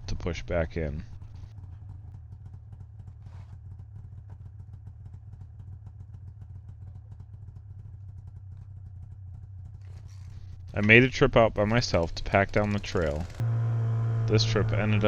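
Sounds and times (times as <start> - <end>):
snowmobile engine running: 10.5 - 15.0.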